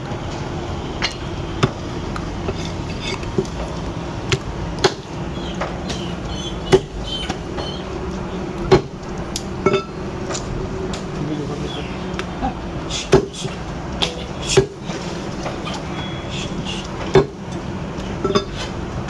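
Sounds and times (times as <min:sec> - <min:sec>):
steady background hum: 0:00.0 - 0:19.0
cleaver chopping on a block: 0:04.3 - 0:05.1.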